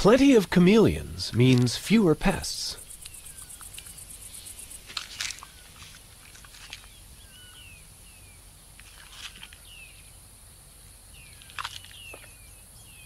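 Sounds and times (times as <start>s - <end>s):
bird chirping: 0.0s - 5.9s, 6.6s - 8.5s, 11.1s - 13.0s.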